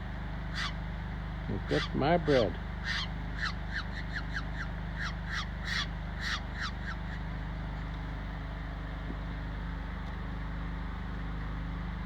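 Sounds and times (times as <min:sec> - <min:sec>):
steady low hum: 0:00.0 - 0:12.0
bird calling: 0:00.5 - 0:00.8, 0:01.6 - 0:07.3.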